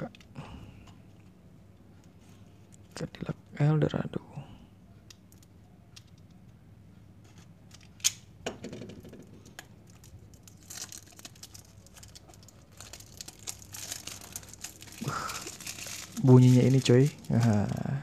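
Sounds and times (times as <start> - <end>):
plastic wrapping crinkling: 9.4 - 18.0.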